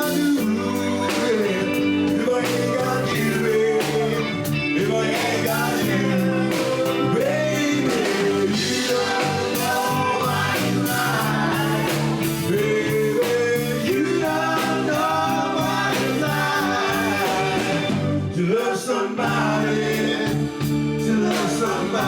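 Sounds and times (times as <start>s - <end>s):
band music with steady beat: 0.0s - 22.0s
person singing: 0.0s - 22.0s.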